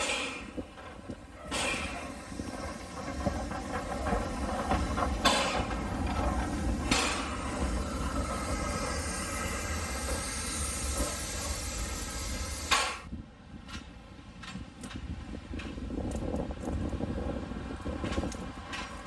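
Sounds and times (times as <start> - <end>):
locomotive steam hissing: 0.0 - 13.1.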